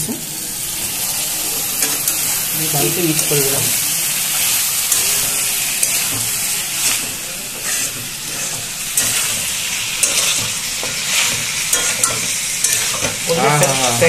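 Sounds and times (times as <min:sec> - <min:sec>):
meat sizzling in hot oil: 0:00.0 - 0:14.0
steel spatula scraping pan: 0:04.9 - 0:14.0.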